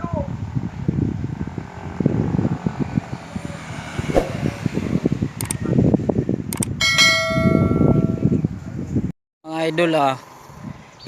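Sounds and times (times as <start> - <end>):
sharp clicks: 5.4 - 5.6, 6.5 - 6.7.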